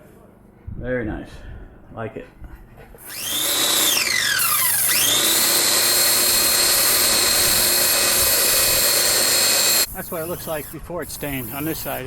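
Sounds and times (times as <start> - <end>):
high-pitched motor whine: 3.1 - 11.3
hiss: 9.8 - 12.0.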